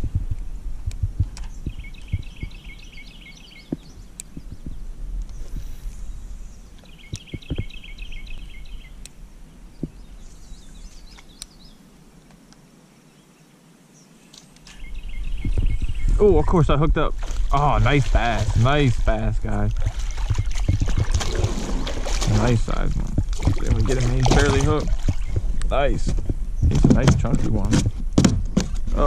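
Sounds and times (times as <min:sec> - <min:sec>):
songbird rapid trill: 0:01.5 - 0:04.6.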